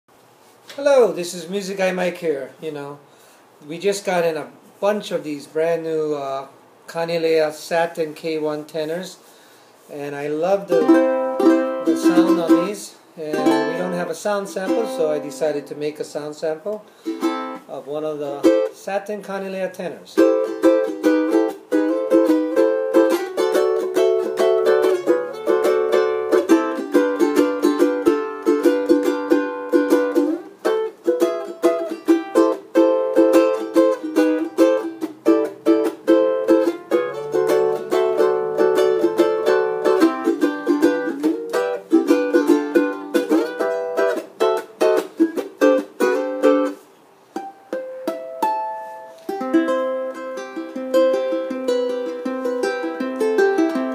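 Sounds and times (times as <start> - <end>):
ukulele strummed chords: 10.4 - 16.0, 16.9 - 18.8, 20.2 - 53.9
ukulele picked notes: 10.6 - 15.9, 17.0 - 18.8, 20.2 - 53.9.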